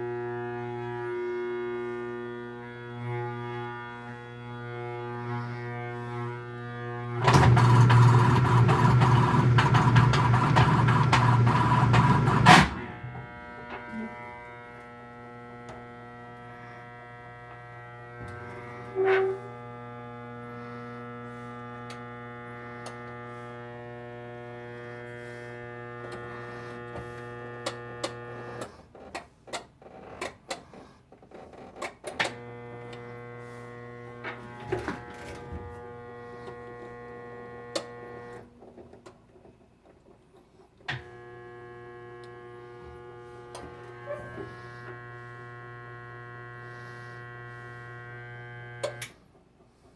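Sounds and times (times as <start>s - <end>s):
rough grinding noise: 2.9s - 19.7s, 41.0s - 49.1s
washing machine motor hum: 7.1s - 28.6s, 40.9s - 49.2s.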